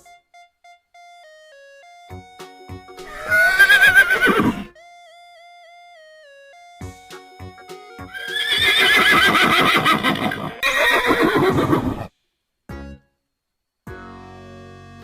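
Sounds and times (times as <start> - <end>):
music: 0.0 - 9.7, 12.1 - 15.0
horse whinnying: 3.1 - 4.7, 8.1 - 12.1.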